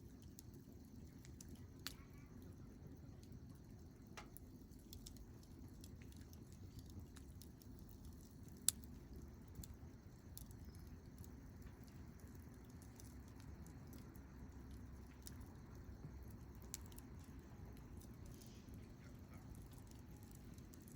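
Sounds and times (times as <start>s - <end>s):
campfire crackling and popping: 0.0s - 20.9s
low fire hiss: 0.0s - 20.9s.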